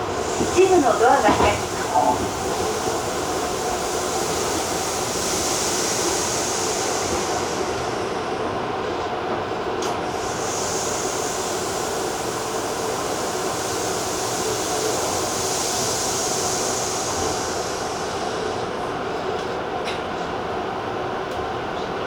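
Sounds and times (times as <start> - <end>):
high hiss: 0.0 - 8.4, 10.0 - 18.9
electric train rumble on board: 0.0 - 22.0.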